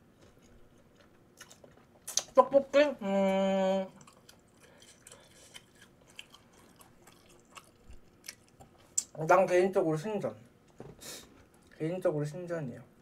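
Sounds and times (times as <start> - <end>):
person chewing with wet smacks: 0.2 - 2.4, 3.9 - 9.2.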